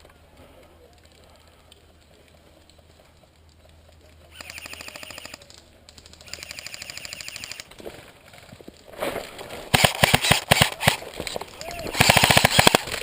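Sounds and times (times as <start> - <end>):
airsoft gun full-auto bursts: 4.3 - 5.4, 6.2 - 7.7, 9.7 - 11.0, 11.7 - 13.0.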